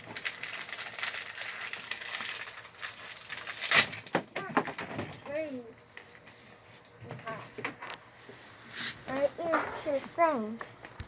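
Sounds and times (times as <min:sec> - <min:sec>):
plastic packaging crinkling and tearing: 0:00.0 - 0:07.0.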